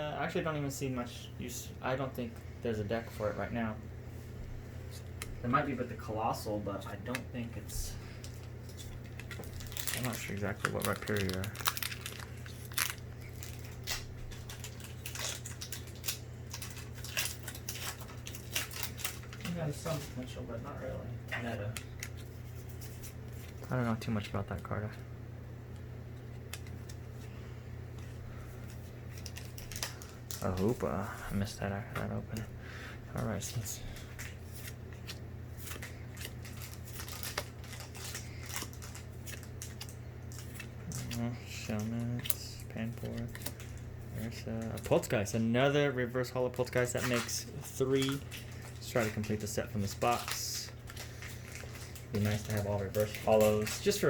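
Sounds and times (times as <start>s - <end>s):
steady low hum: 0.0s - 54.0s
foil pack crinkling: 8.1s - 20.4s, 28.4s - 31.9s, 33.2s - 45.3s, 46.4s - 54.0s.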